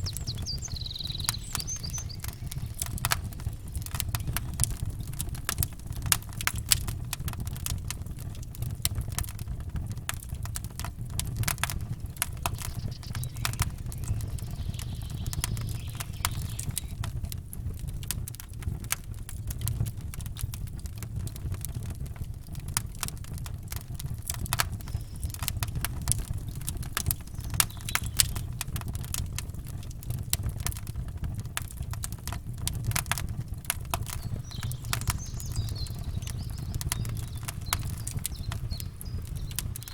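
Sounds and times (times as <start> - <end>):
steady low rumble: 0.0 - 8.9, 10.9 - 17.3, 32.5 - 39.9
campfire crackling and popping: 0.0 - 39.9.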